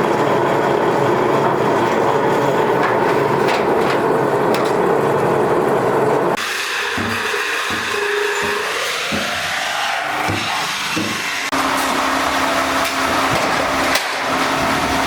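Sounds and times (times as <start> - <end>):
factory machinery noise: 0.0 - 15.0.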